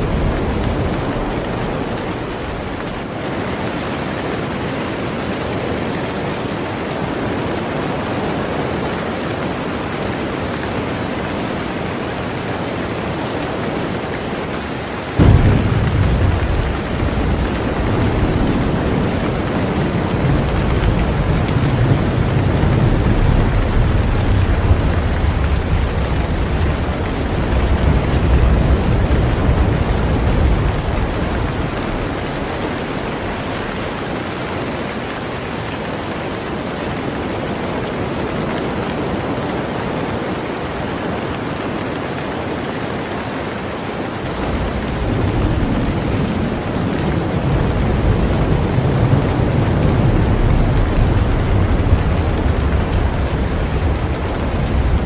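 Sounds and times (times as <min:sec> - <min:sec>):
heavy rain on a boat: 0:00.0 - 0:55.0
deep low rumble: 0:15.2 - 0:33.6.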